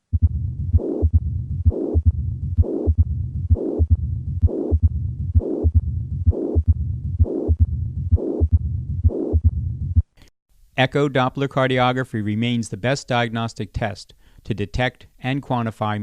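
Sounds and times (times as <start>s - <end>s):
low rumbling heart murmur: 0.0s - 10.1s.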